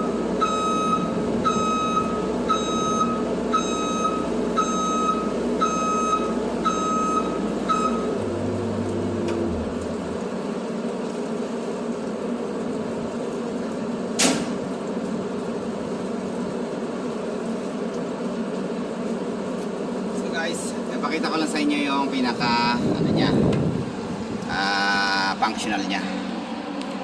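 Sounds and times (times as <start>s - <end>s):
truck reversing alarm beeping: 0.0s - 9.7s
truck engine running: 0.0s - 10.8s.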